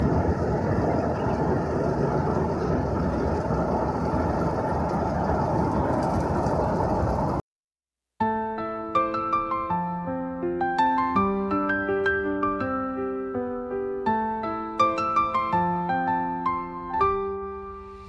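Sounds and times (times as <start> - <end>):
train running: 0.0 - 7.4.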